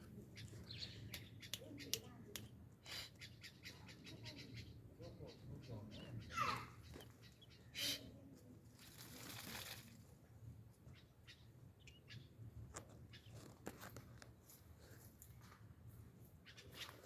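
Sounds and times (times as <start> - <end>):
small birds chirping: 0.0 - 8.1, 10.8 - 13.8, 16.3 - 17.0.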